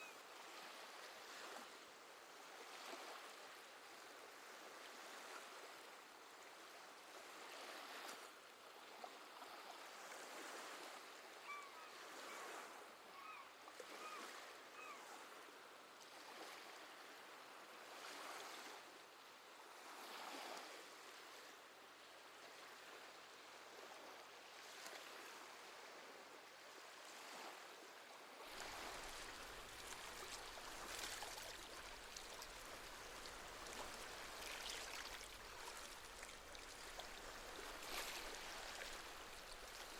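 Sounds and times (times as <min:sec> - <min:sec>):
seabird calls: 0:11.4 - 0:12.5, 0:13.1 - 0:15.1.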